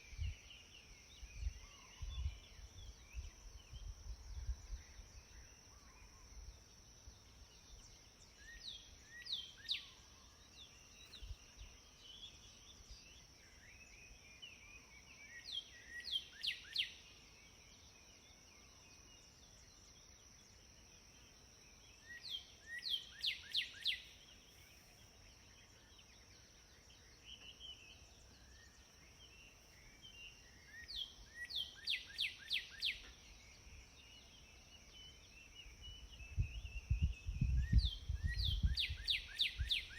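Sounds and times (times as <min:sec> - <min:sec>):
bird chirps: 0:00.0 - 0:39.9
songbird singing: 0:00.0 - 0:39.9.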